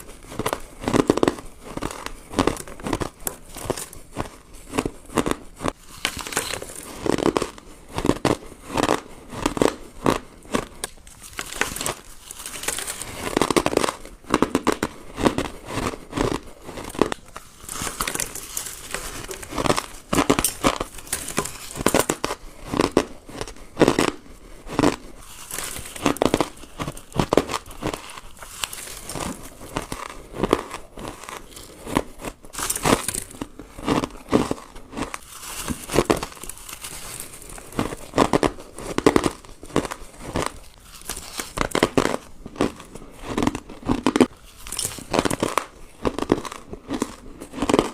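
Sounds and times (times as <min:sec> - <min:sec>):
person chewing crunchy ice: 0:00.0 - 0:47.9.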